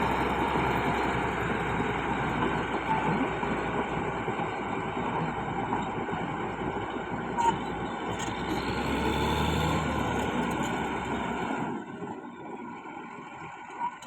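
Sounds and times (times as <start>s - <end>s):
bulldozer diesel engine rumble: 0.0s - 14.0s.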